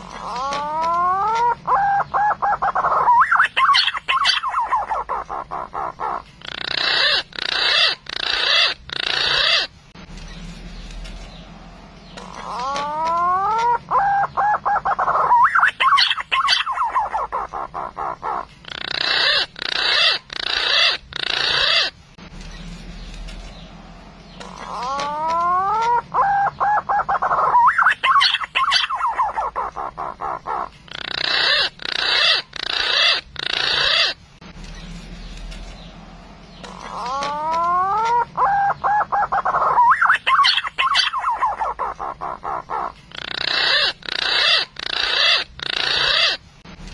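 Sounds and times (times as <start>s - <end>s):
pigeon call: 0.0s - 9.7s, 24.4s - 34.2s, 36.6s - 46.4s.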